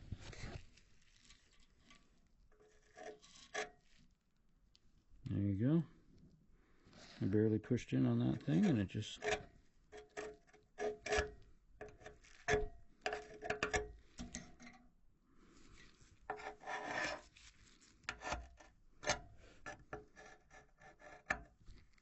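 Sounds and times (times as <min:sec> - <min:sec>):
metal pick scraping metal: 0:02.5 - 0:04.0, 0:08.2 - 0:14.8, 0:15.8 - 0:17.3, 0:18.0 - 0:21.5.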